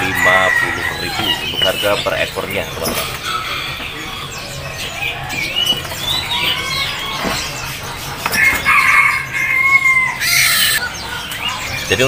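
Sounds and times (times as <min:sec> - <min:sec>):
caged birds calling: 0:00.0 - 0:12.0
long held bird call: 0:08.2 - 0:11.9.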